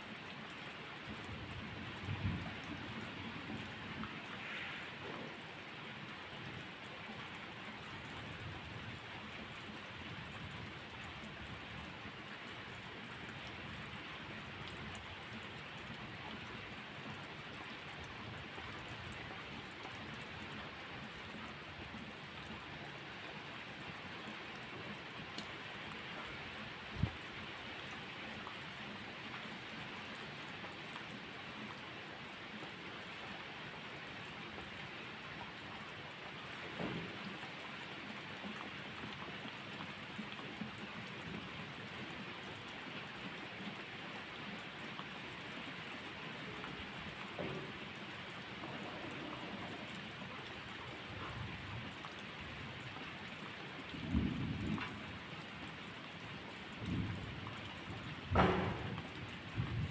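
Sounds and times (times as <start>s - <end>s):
steady rainfall: 0.0s - 59.9s
short low thump: 58.3s - 59.2s.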